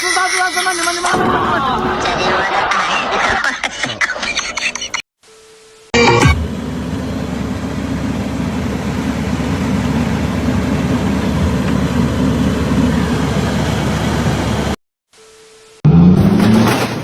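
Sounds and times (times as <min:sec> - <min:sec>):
vehicle engine rumbling: 0:06.4 - 0:14.8, 0:15.9 - 0:17.0.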